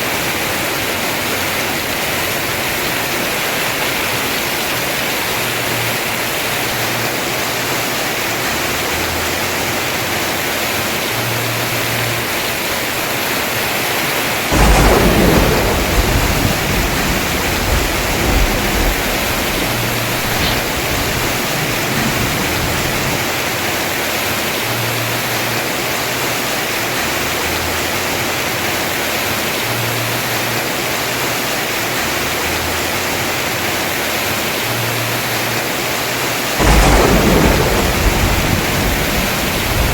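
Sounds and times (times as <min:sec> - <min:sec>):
heavy rain on a roof: 0:00.0 - 0:39.9
thunder clap: 0:14.4 - 0:24.6, 0:36.6 - 0:39.9.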